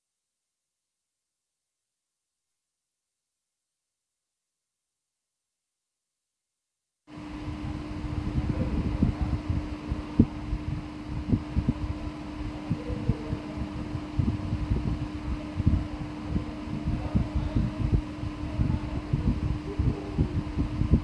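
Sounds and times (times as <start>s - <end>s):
steady hum: 7.1s - 21.0s
low thuds and buffeting: 7.4s - 21.0s.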